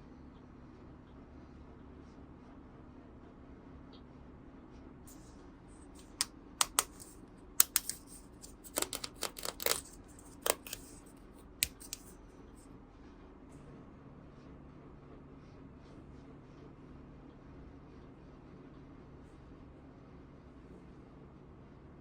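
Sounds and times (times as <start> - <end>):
packaging rustle: 6.0 - 12.1
toys clicking and tapping: 6.0 - 12.1.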